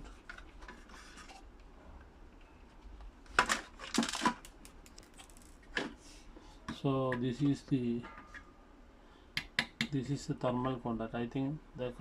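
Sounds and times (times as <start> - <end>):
small plastic parts clicking: 3.5 - 5.6.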